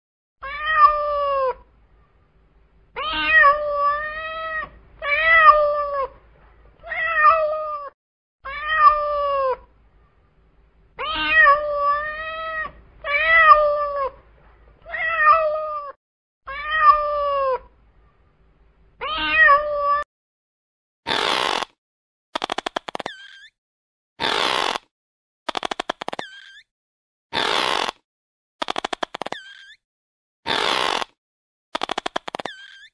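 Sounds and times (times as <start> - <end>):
cat meowing: 0.4 - 1.6, 3.0 - 6.2, 6.8 - 7.9, 8.5 - 9.7, 11.0 - 14.2, 14.8 - 17.6, 19.0 - 20.0.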